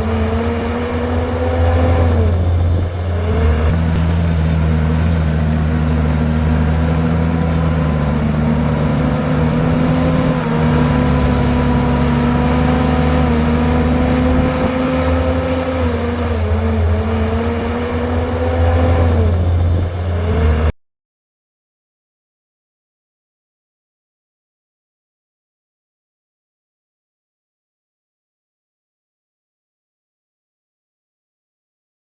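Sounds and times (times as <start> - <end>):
bulldozer diesel engine running: 0.0 - 20.7.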